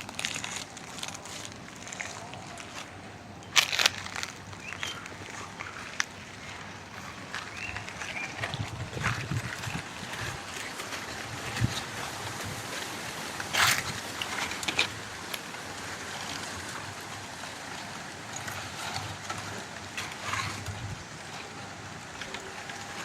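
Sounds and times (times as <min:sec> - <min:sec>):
footsteps crunching on dry leaves: 0:00.0 - 0:23.0
wind through trees: 0:00.0 - 0:23.0
wind rumble on microphone: 0:04.8 - 0:14.5, 0:18.6 - 0:21.9.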